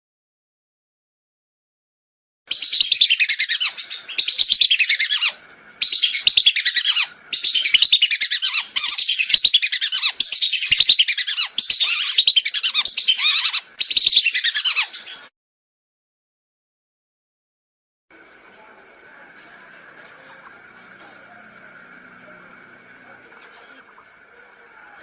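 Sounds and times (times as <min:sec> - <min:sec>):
whistling duck calls: 0:02.5 - 0:15.2.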